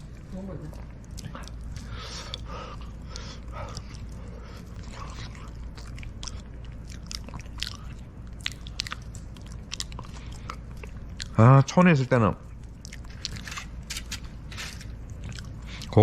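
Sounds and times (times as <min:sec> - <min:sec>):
steady low hum: 0:00.0 - 0:16.0
person chewing food: 0:00.1 - 0:11.4, 0:12.4 - 0:16.0.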